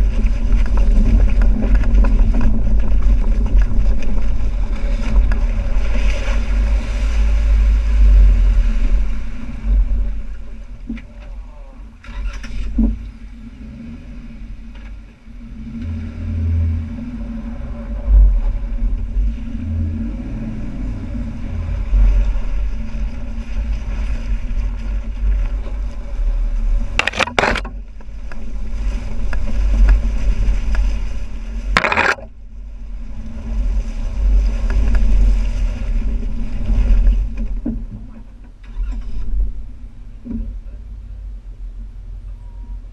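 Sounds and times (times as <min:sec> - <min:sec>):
off-road vehicle engine rumble: 0:00.0 - 0:42.9
sharp knocks or scrapes: 0:27.0 - 0:27.8, 0:31.7 - 0:32.3.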